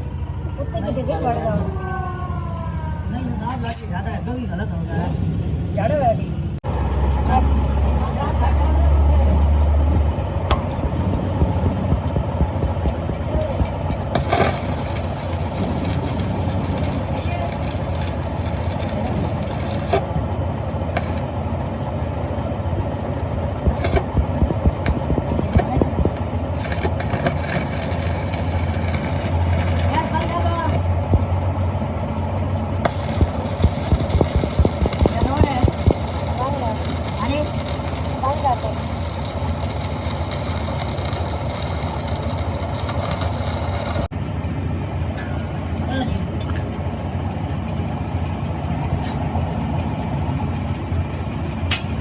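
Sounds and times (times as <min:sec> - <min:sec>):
machine humming: 0:06.6 - 0:44.5
engine idling: 0:06.6 - 0:52.0.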